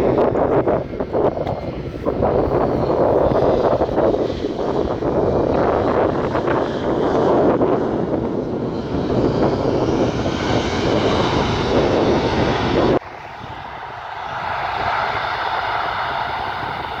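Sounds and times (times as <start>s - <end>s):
high jet engine whine: 0.0s - 17.0s
jet engines roaring: 0.0s - 17.0s.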